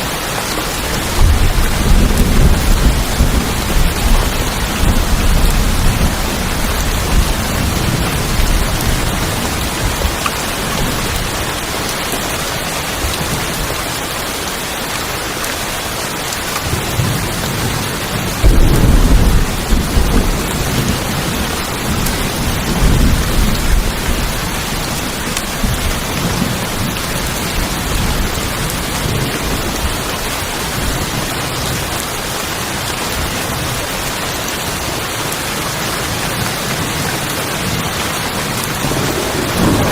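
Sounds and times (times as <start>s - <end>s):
heavy rain on a tin roof: 0.0s - 39.9s
thunder rumbling: 0.6s - 12.3s, 16.6s - 32.0s, 36.9s - 39.9s.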